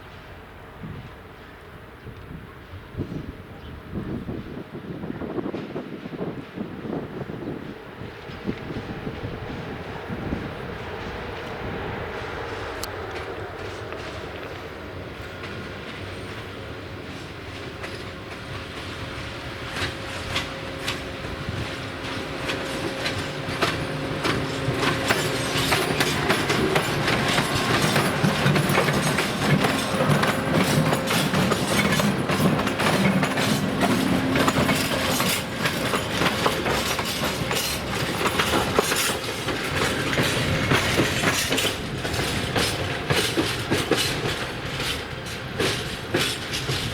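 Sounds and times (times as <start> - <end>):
train passing: 0.0 - 46.9
wheels clicking over rail joints: 17.1 - 46.9.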